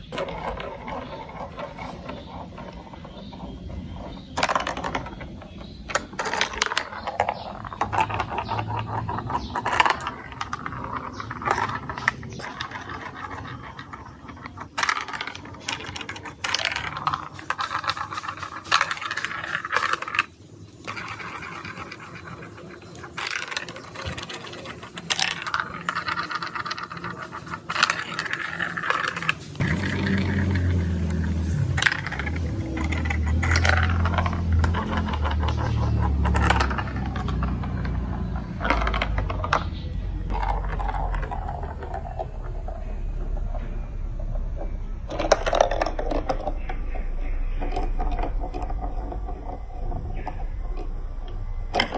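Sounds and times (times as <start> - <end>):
marbles clattering down plastic track: 0.0 - 51.9
low rumble: 29.6 - 51.9.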